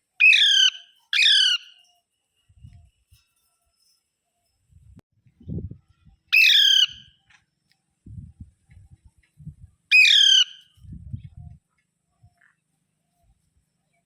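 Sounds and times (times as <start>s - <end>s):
parakeet squawking: 0.2s - 1.7s, 6.4s - 7.0s, 9.9s - 10.6s.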